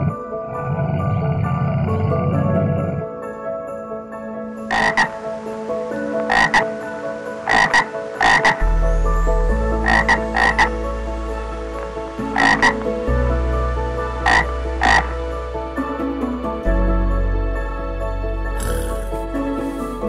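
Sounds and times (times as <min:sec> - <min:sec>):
toad croaking: 0:04.7 - 0:05.2, 0:06.3 - 0:06.7, 0:07.5 - 0:08.6, 0:09.8 - 0:10.7, 0:12.4 - 0:12.8, 0:14.2 - 0:15.1, 0:18.6 - 0:20.0.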